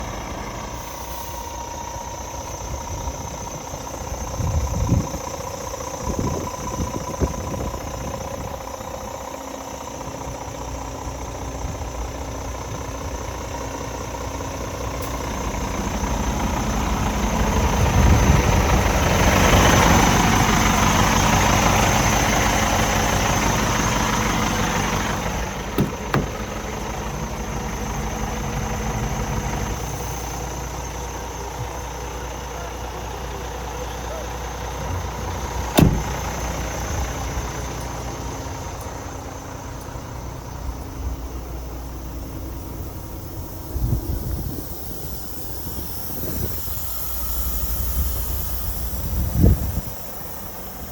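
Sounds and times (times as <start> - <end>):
truck diesel engine idling: 0.0 - 50.9
short knocks: 25.8 - 26.5, 35.7 - 36.2.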